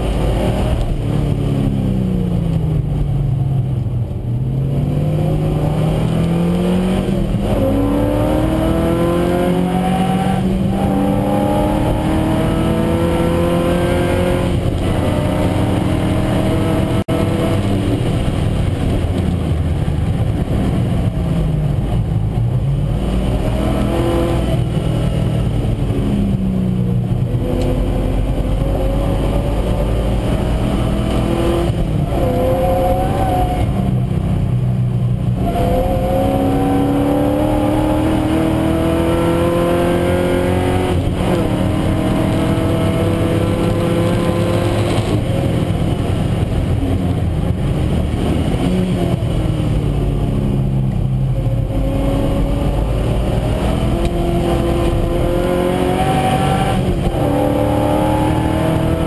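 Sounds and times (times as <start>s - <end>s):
car engine accelerating through gears: 0.0s - 59.0s.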